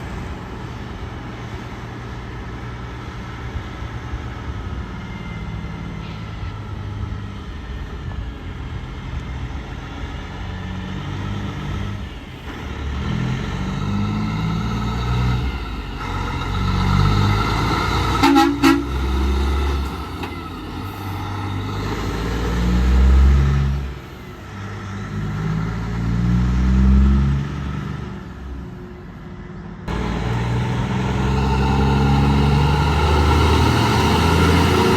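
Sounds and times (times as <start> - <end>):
heavy trucks passing: 0.0 - 34.9
horn short toots: 18.1 - 19.3.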